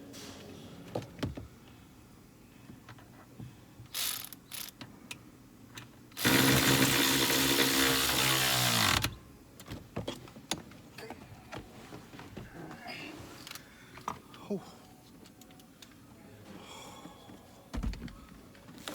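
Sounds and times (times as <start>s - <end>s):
electric power tool winding down: 6.2s - 9.1s.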